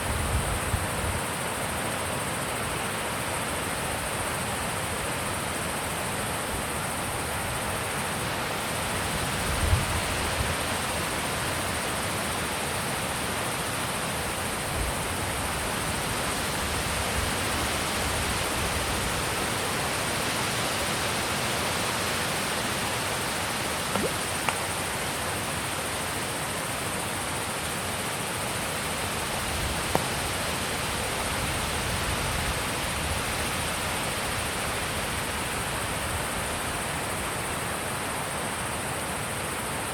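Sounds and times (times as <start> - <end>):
wind thumps on microphone: 23.9 - 24.6.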